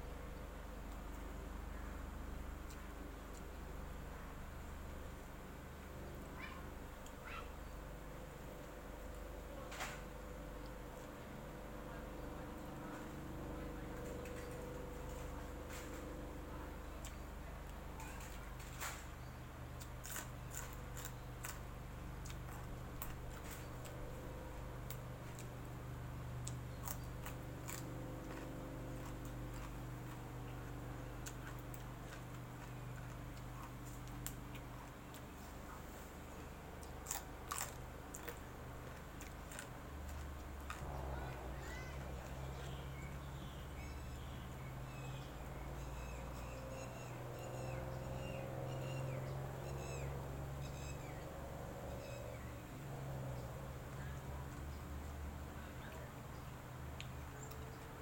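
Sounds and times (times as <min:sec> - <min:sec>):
steady low hum: 0:00.0 - 0:58.0
eating clicks and crunches: 0:02.6 - 0:03.6, 0:13.8 - 0:16.2, 0:16.8 - 0:43.2, 0:53.0 - 0:58.0.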